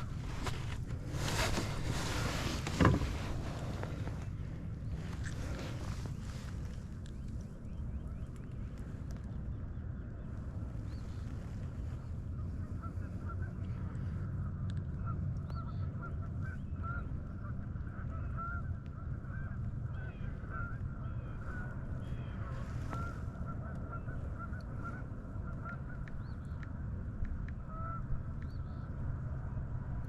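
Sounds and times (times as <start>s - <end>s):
steady low rumble: 0.0s - 30.0s
geese honking: 14.9s - 26.2s, 27.6s - 28.2s.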